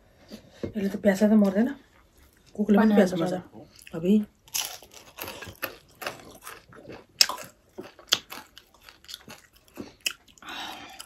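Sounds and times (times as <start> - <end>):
chewing with wet mouth smacks: 3.7 - 11.0.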